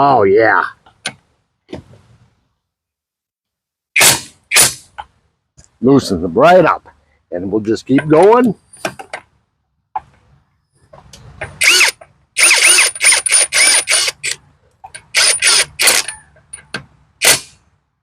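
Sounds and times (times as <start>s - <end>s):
impact wrench motor whining: 11.6s - 14.4s, 15.0s - 16.1s.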